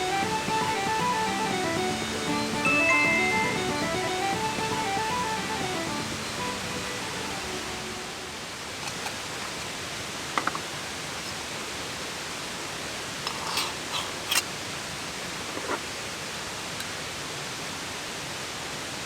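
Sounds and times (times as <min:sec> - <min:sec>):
background music: 0:00.0 - 0:08.2
steady rushing outdoor noise: 0:03.4 - 0:13.3.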